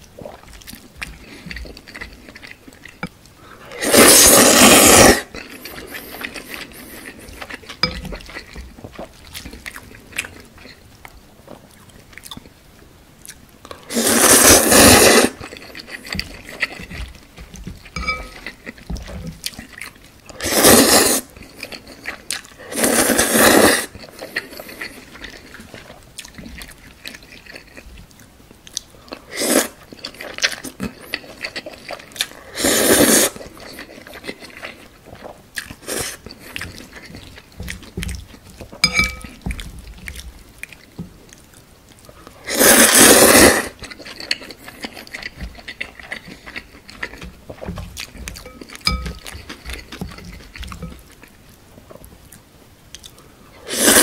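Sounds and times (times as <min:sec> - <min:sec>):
wet chewing and mouth clicks: 0:00.0 - 0:12.6, 0:13.2 - 0:20.4, 0:21.2 - 0:32.5, 0:33.1 - 0:42.4, 0:43.6 - 0:53.3
noodle slurping: 0:03.7 - 0:08.6, 0:13.9 - 0:18.7, 0:20.4 - 0:22.1, 0:22.7 - 0:25.5, 0:32.5 - 0:34.7, 0:42.4 - 0:47.2, 0:53.6 - 0:54.0.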